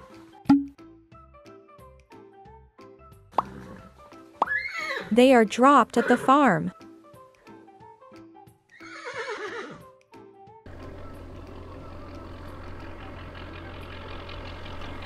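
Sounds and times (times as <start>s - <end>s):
light background music: 0.0s - 15.0s
horse whinnying: 3.4s - 5.2s, 5.8s - 6.5s, 8.7s - 9.8s
tractor engine running: 10.7s - 15.0s.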